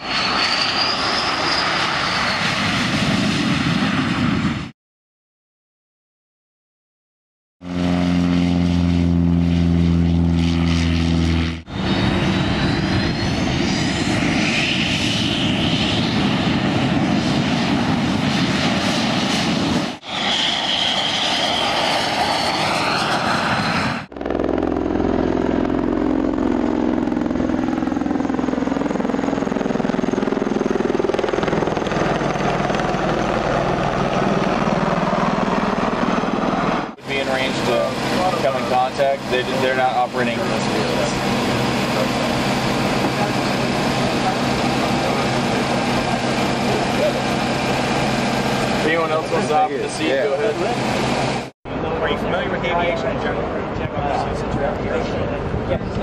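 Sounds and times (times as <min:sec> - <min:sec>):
aircraft engine roar: 0:00.0 - 0:04.7, 0:07.6 - 0:56.0.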